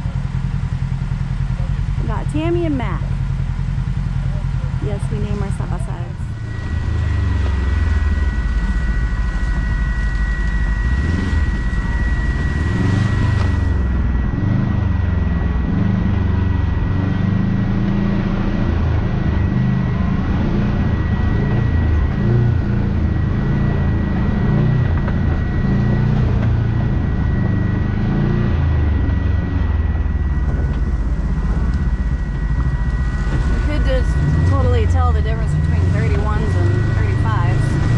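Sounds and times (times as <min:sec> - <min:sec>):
off-road vehicle engine rumble: 0:00.0 - 0:37.9
thin high whine: 0:00.0 - 0:37.9.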